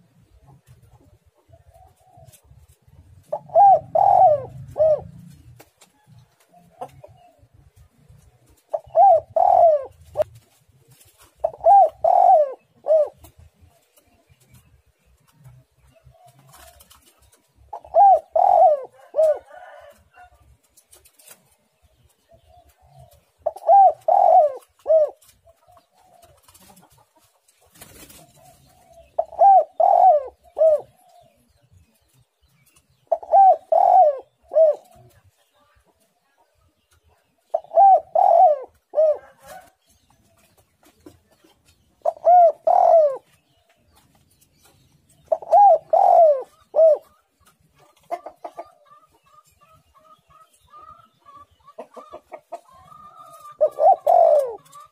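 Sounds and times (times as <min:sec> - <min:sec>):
dove cooing: 0:00.0 - 0:05.6, 0:08.5 - 0:14.2, 0:16.0 - 0:20.4, 0:22.3 - 0:27.0, 0:27.9 - 0:31.6, 0:33.0 - 0:35.2, 0:37.4 - 0:40.4, 0:41.9 - 0:43.4, 0:45.2 - 0:49.4, 0:50.3 - 0:54.9.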